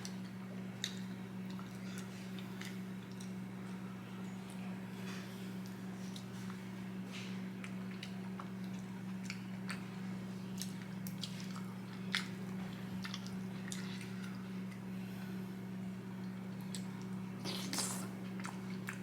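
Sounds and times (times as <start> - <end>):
chewing and wet mouth clicks: 0.0 - 3.4, 7.6 - 9.9, 10.5 - 14.8, 16.2 - 19.0
low electrical hum: 0.0 - 19.0.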